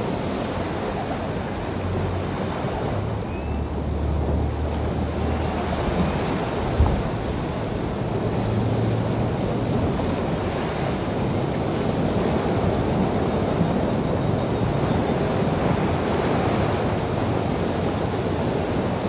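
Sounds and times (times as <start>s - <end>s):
sea surf washing on shore: 0.0s - 19.0s
brief thump: 6.8s - 7.1s.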